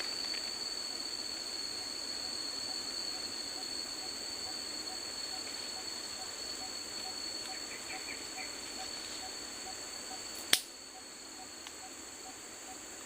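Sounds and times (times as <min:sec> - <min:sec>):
high insect drone: 0:00.0 - 0:13.0
sharp click: 0:10.5 - 0:10.7.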